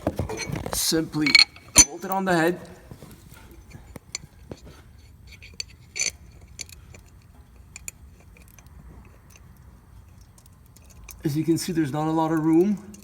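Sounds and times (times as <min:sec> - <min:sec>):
light metal clicks and clinks: 0:01.2 - 0:02.2, 0:03.5 - 0:11.4, 0:12.2 - 0:13.0.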